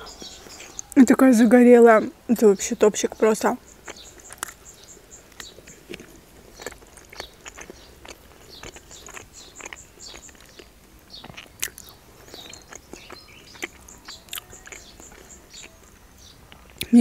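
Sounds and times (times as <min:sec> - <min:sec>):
person chewing food: 0:03.6 - 0:16.9
wet mouth clicks and smacks: 0:05.3 - 0:15.8.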